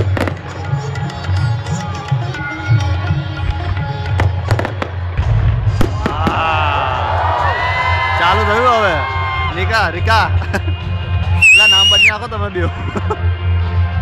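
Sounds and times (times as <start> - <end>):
music with tabla-like drumming: 0.0 - 7.6
fireworks booming: 4.2 - 7.1.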